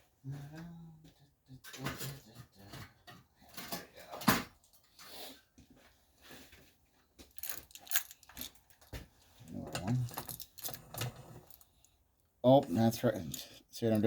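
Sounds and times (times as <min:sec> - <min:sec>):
metal engine parts clinking: 0:07.3 - 0:08.9, 0:09.6 - 0:11.7.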